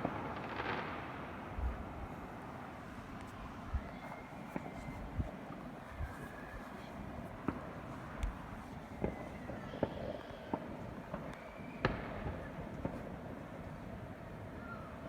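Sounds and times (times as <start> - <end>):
distant fireworks bangs: 0.0 - 14.0
faint whistling tones: 2.9 - 13.0, 14.4 - 15.0.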